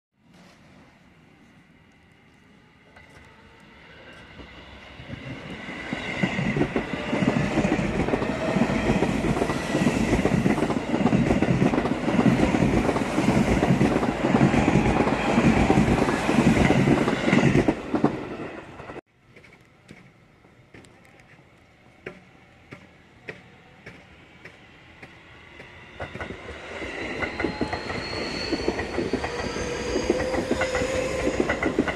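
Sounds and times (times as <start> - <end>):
train wheels clattering: 22.0 - 31.9.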